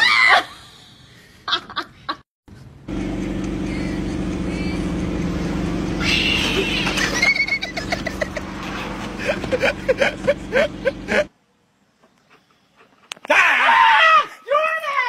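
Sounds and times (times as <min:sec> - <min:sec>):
low mechanical drone: 0:02.5 - 0:11.3
loud wailing cry: 0:06.0 - 0:07.6, 0:13.2 - 0:15.0.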